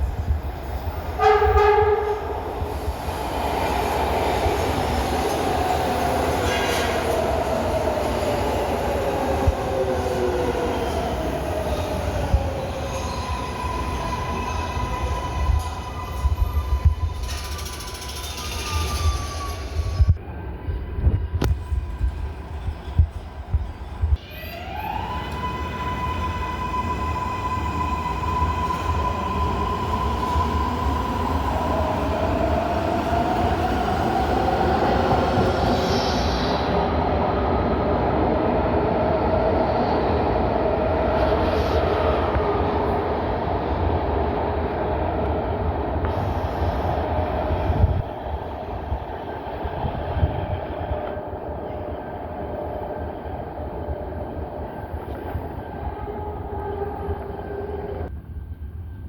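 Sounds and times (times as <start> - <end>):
train running on rails: 0.0 - 59.0
wheel squeal: 16.0 - 20.1.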